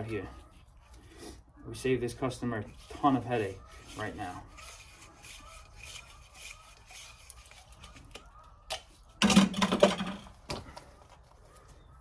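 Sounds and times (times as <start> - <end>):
metal tools rubbing on pipe: 2.6 - 8.2.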